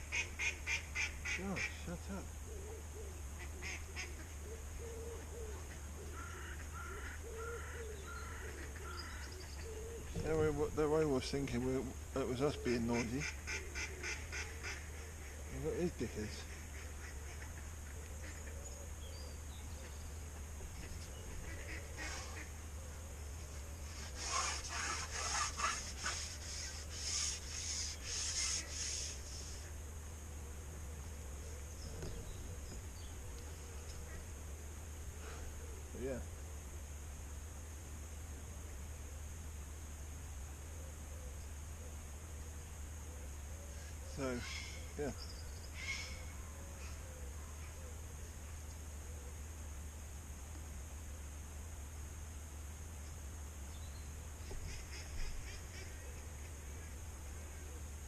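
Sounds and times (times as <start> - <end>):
higher bird calls: 0.0 - 10.3, 12.4 - 36.1, 40.6 - 48.2
low repeated bird call: 0.0 - 10.8, 11.8 - 36.6, 40.5 - 49.9, 53.6 - 58.0
steady low hum: 0.0 - 58.0
short scraping strokes: 23.8 - 29.7.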